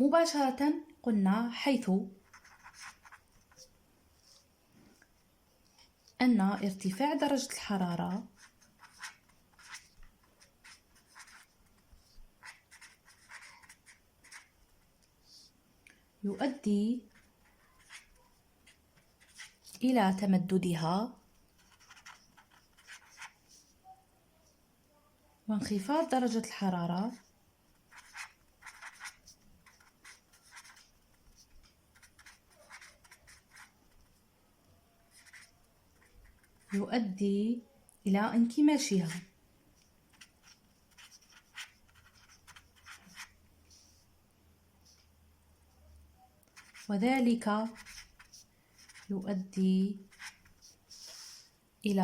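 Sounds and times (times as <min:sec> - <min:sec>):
pen scratching handwriting: 0:02.2 - 0:03.7, 0:08.1 - 0:11.6, 0:12.4 - 0:14.6, 0:17.1 - 0:19.6, 0:21.6 - 0:23.4, 0:27.8 - 0:33.8, 0:35.1 - 0:36.8, 0:40.1 - 0:43.4, 0:46.6 - 0:46.9, 0:47.6 - 0:49.2.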